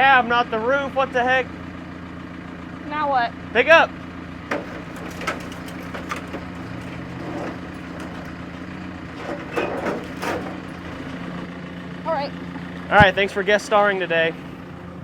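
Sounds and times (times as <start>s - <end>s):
engine running under load: 0.0s - 15.0s
sheet metal cracking and crunching: 4.5s - 11.4s.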